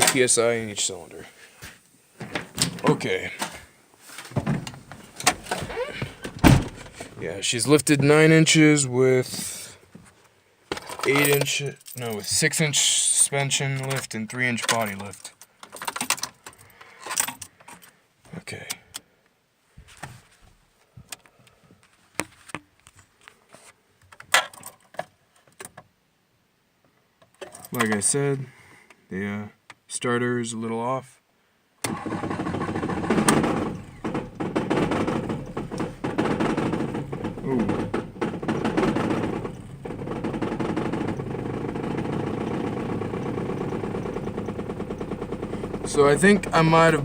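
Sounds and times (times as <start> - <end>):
car engine idling: 32.2 - 47.0
sharp clicks and knocks: 32.8 - 47.0.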